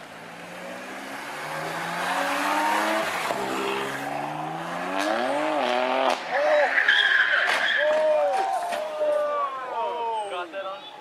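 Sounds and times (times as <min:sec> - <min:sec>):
car engine accelerating hard: 0:00.3 - 0:06.2.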